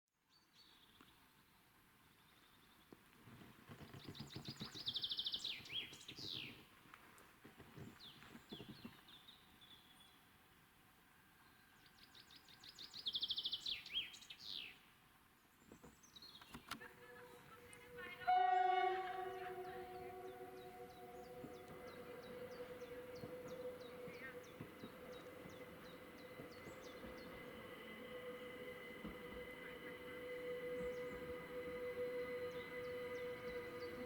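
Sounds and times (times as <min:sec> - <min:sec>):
songbird singing: 0:03.8 - 0:06.7, 0:11.4 - 0:34.0.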